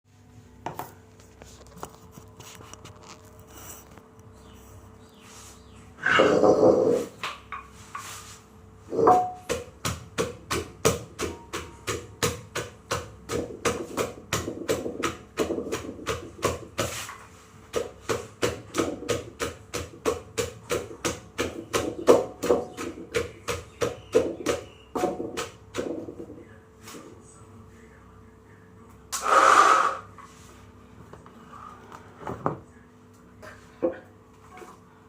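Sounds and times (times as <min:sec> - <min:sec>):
pestle pounding in mortar: 0:08.9 - 0:17.1, 0:17.7 - 0:26.3.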